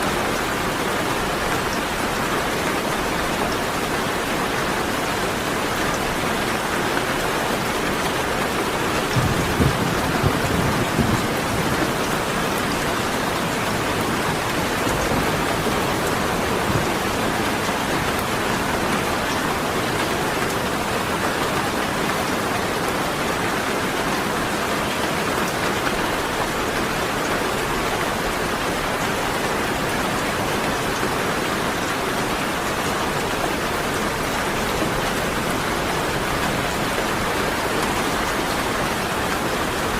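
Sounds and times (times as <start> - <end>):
steady rain: 0.0 - 39.9
thunder rumble: 9.0 - 17.9.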